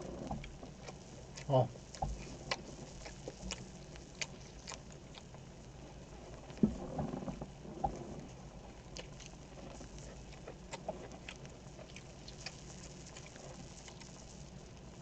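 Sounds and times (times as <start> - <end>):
chewing with wet mouth clicks: 0.2 - 5.8, 8.7 - 14.9.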